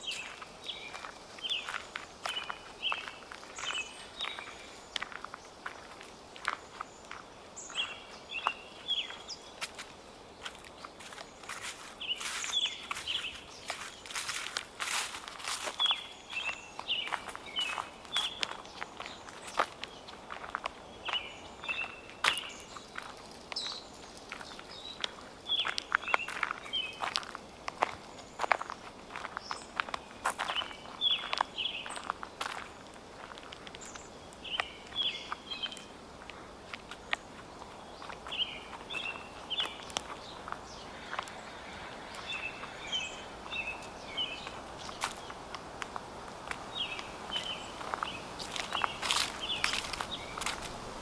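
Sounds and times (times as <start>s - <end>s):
footsteps crunching dry leaves: 0.0s - 51.0s
songbirds chirping: 0.0s - 51.0s
bird chirps: 10.4s - 20.1s, 38.0s - 45.3s.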